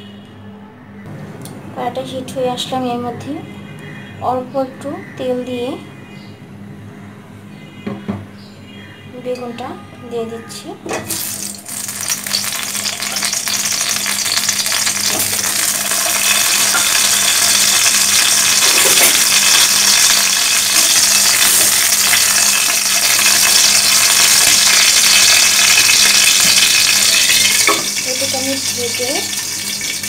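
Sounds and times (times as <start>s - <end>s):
eggplants sizzling in hot oil: 11.0s - 30.0s.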